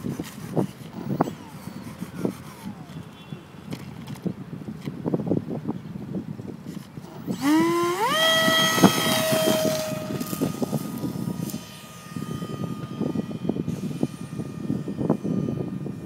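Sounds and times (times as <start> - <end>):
electric fan whine rising: 0.0 - 3.2, 6.9 - 16.0.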